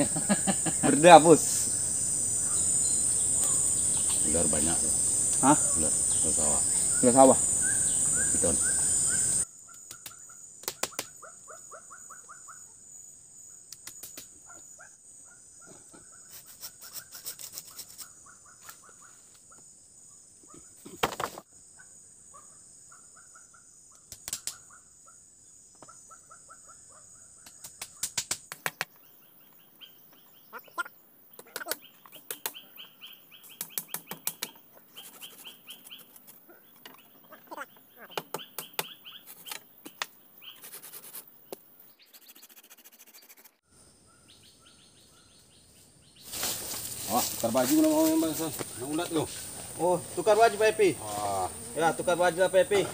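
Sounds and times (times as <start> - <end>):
high insect drone: 0.0 - 11.8, 12.6 - 52.9
birds calling: 0.0 - 19.6, 28.7 - 52.9
sharp knocks and clicks: 33.6 - 34.6, 38.1 - 40.1.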